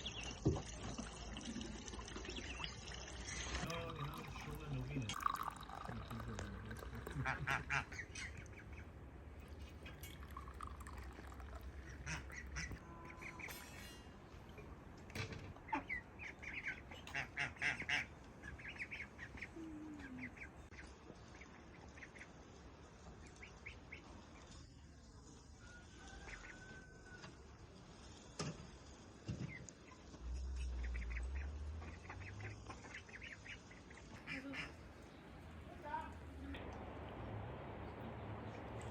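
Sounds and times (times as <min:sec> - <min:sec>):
ducks calling: 0:06.9 - 0:09.0, 0:11.2 - 0:13.9, 0:15.6 - 0:19.6, 0:29.5 - 0:36.2.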